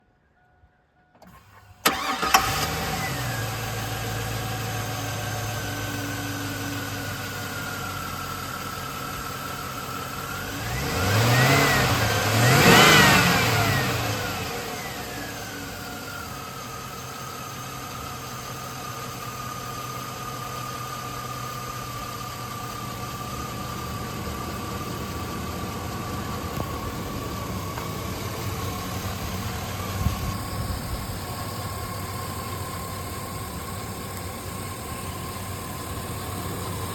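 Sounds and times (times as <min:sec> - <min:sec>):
truck engine idling and revving: 0:01.2 - 0:36.9
steady whine: 0:11.7 - 0:36.9.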